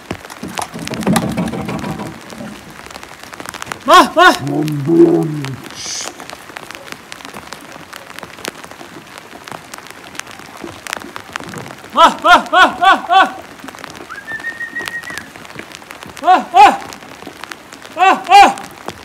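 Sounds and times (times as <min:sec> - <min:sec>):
sharp raindrop ticks: 0:00.0 - 0:19.0
steady rain falling: 0:00.0 - 0:19.0
high steady whistle: 0:14.1 - 0:15.3
short pitched calls: 0:14.1 - 0:15.4.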